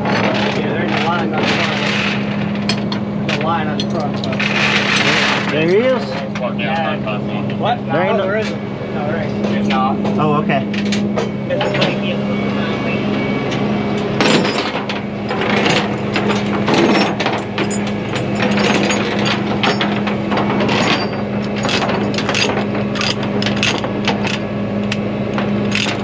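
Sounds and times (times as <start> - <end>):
low engine hum: 0.0 - 26.0
tie-down chains rattling: 3.8 - 5.8, 14.2 - 26.0
ratchet clicking: 21.6 - 25.0.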